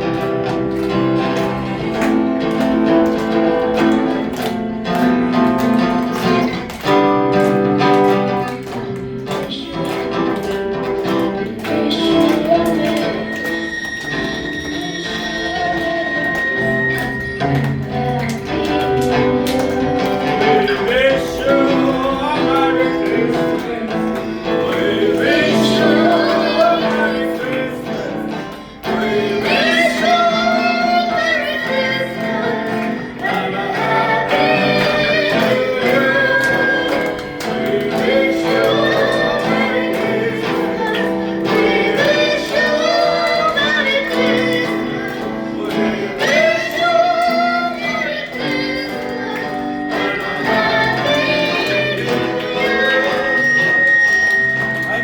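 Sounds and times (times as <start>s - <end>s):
group of voices singing: 0.0s - 55.0s
musical accompaniment: 0.0s - 55.0s.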